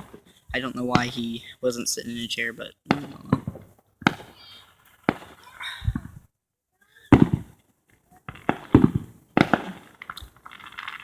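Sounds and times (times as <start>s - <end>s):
fireworks bangs with rumbling tails: 0.0s - 1.4s, 2.8s - 4.4s, 5.0s - 6.3s, 7.1s - 7.6s, 8.3s - 11.0s.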